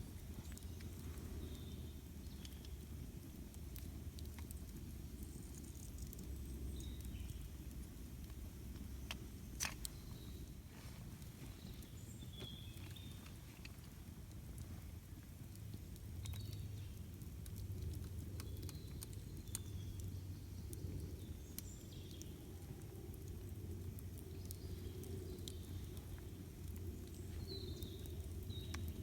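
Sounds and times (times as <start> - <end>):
campfire crackling and popping: 0.0 - 29.0
birds chirping: 8.5 - 13.8.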